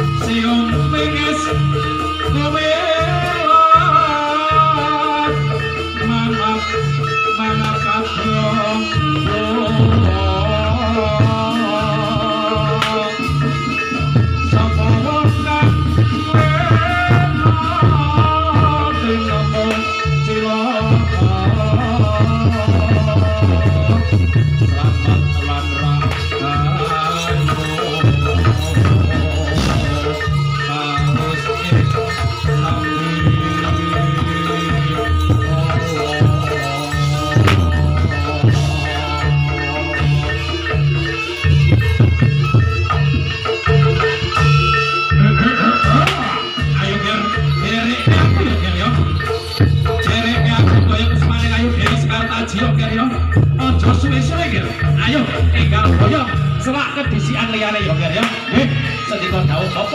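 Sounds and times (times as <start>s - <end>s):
person singing: 0.0s - 41.4s
drums with driving beat: 0.0s - 59.9s
struck tuned metal keys: 27.2s - 38.6s
deep low notes: 28.6s - 30.4s.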